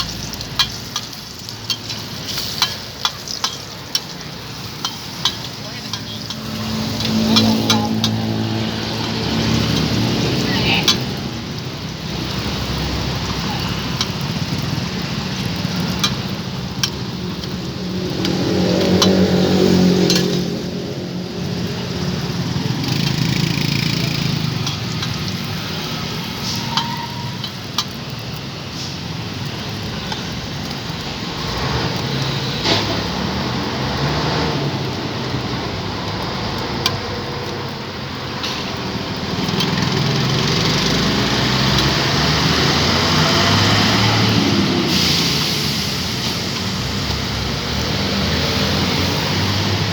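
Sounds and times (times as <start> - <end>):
flatbread sizzling on a griddle: 0.0 - 49.9
passing traffic: 0.0 - 49.9
spatula tapping and scraping metal: 0.3 - 8.2, 15.8 - 17.6, 26.6 - 28.0
voices: 2.2 - 17.5, 21.6 - 27.6.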